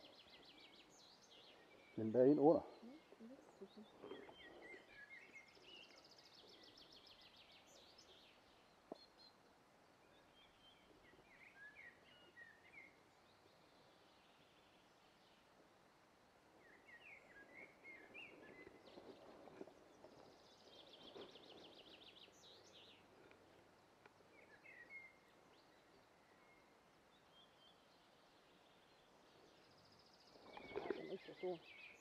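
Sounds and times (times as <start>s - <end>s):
faint songbirds chirping: 0.0s - 32.0s
faint rustling: 17.5s - 24.5s.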